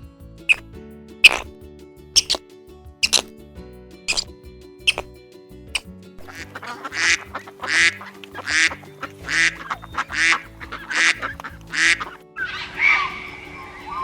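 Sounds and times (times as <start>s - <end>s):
background music: 0.0s - 14.0s
duck quacking: 2.2s - 2.4s, 3.0s - 3.2s, 4.9s - 5.1s, 6.2s - 12.2s.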